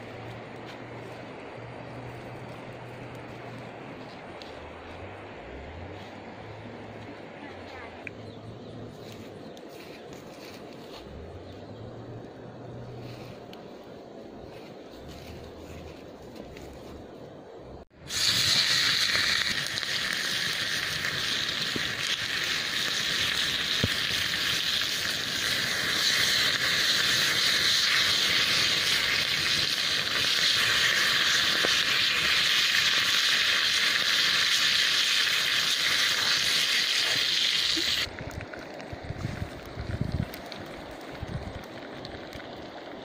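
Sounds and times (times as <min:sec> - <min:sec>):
pig ear sizzling in pan: 0:18.0 - 0:38.1.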